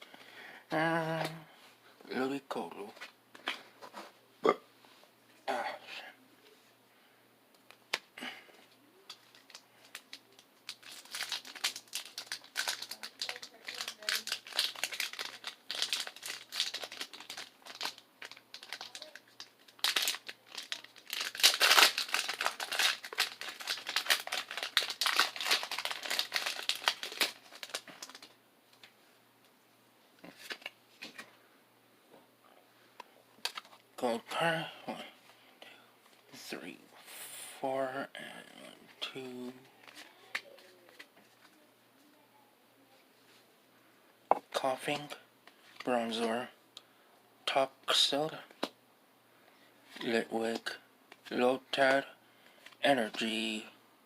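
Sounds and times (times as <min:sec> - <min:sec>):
foil wrapper tearing and crinkling: 0:09.3 - 0:28.3
cards shuffling: 0:30.3 - 0:31.3.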